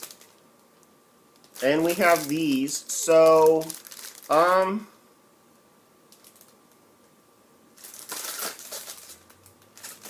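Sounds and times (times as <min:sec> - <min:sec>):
packaging rustling and crinkling: 0:00.0 - 0:00.4, 0:01.4 - 0:04.6, 0:06.1 - 0:06.7, 0:07.8 - 0:10.0.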